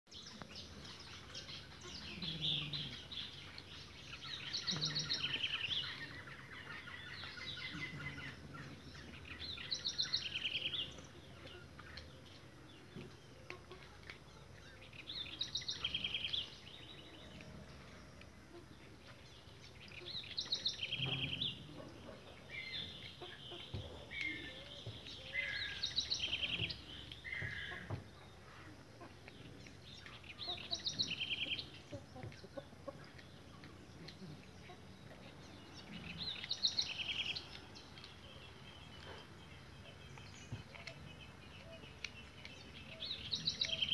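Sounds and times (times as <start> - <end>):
bird chirps: 19.1 - 43.9.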